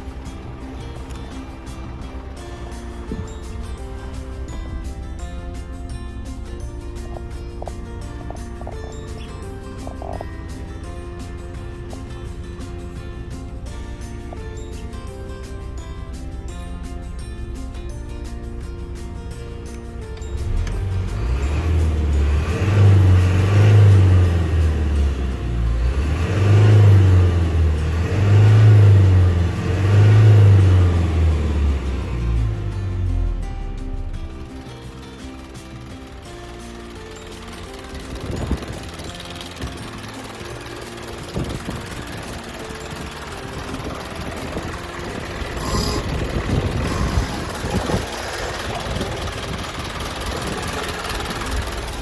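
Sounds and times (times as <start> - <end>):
diesel truck engine revving: 0.0 - 52.0.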